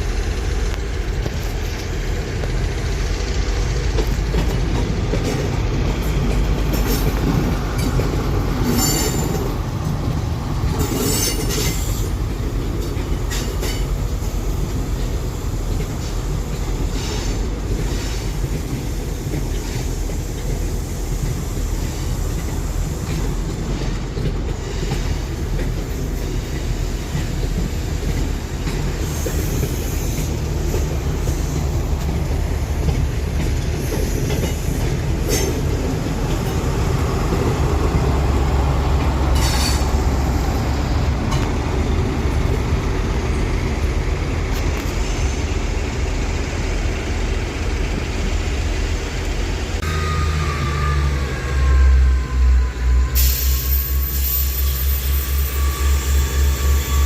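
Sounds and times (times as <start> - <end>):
train wheels rumbling on rails: 0.0 - 57.0
high wheel squeals: 29.0 - 31.8, 49.8 - 57.0.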